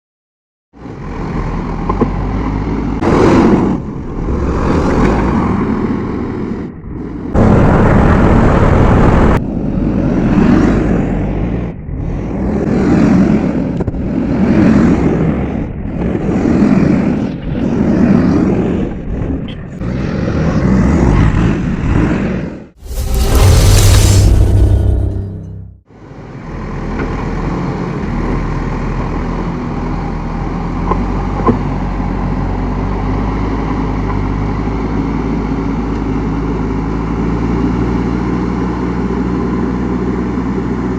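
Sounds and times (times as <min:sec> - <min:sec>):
diesel engine running under load: 0:06.3 - 0:16.2, 0:25.9 - 0:40.9.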